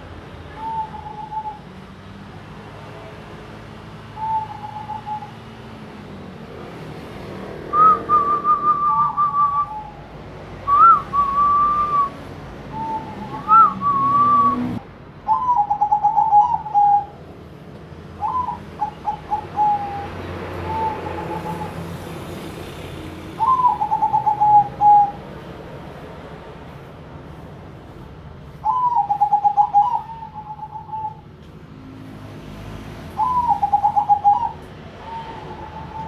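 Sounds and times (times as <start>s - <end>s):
doves cooing: 15.3s - 17.2s, 18.2s - 21.9s, 23.4s - 25.2s, 28.6s - 31.2s, 33.2s - 36.0s.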